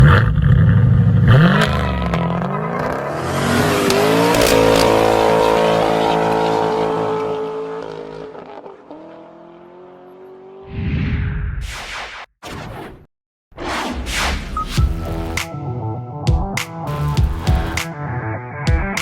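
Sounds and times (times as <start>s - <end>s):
car engine revving: 0.0s - 10.6s.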